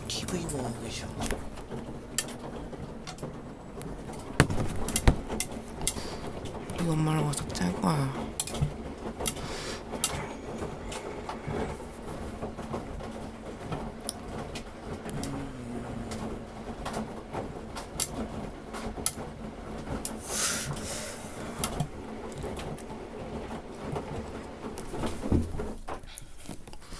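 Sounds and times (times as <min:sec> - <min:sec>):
washing machine motor hum: 0:00.0 - 0:26.4
drum clicks and knocks: 0:01.2 - 0:06.8, 0:21.6 - 0:26.1
rush of hiss: 0:20.2 - 0:21.5.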